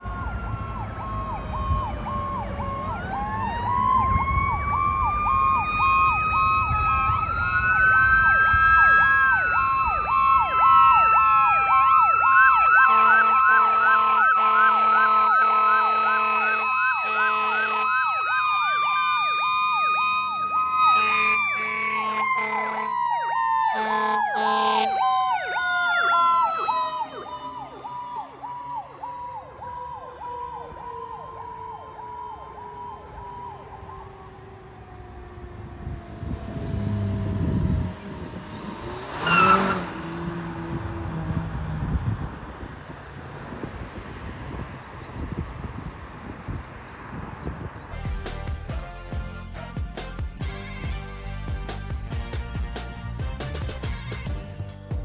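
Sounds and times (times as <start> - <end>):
pulsing electronic siren: 0.0 - 41.2
wailing siren: 0.0 - 44.7
air horn blasts: 12.8 - 18.2, 20.7 - 25.2, 47.9 - 55.0
engine rumbling: 32.5 - 55.0.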